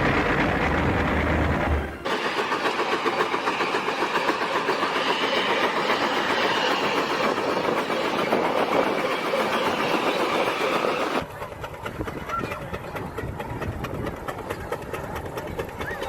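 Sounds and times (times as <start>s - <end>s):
steam traction engine clatter: 0.0s - 16.0s.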